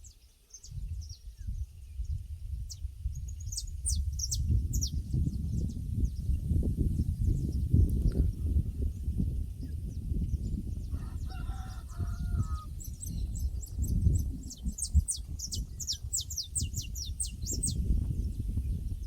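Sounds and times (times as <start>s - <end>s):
small bird chirping: 0.0s - 8.3s, 11.3s - 19.0s
rooster crowing: 10.9s - 12.7s.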